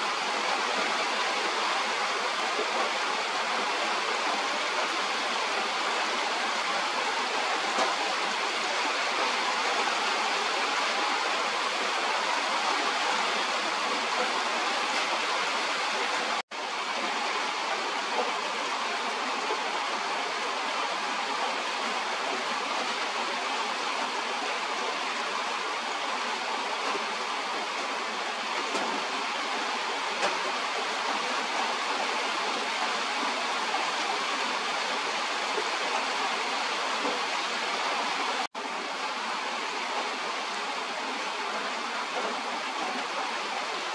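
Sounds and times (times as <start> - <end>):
rain falling on foliage: 0.0 - 43.9.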